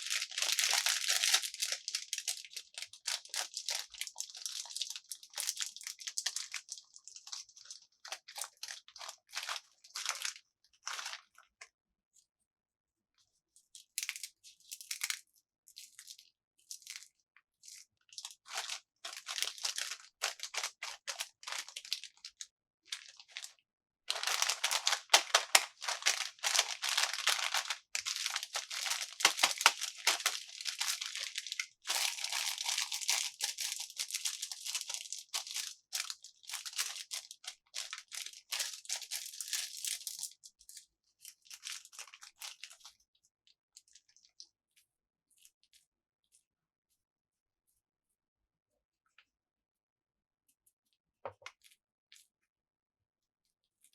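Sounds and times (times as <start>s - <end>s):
plastic packaging crinkling and tearing: 0.0s - 11.3s, 13.8s - 15.2s, 15.8s - 23.5s, 24.1s - 42.9s.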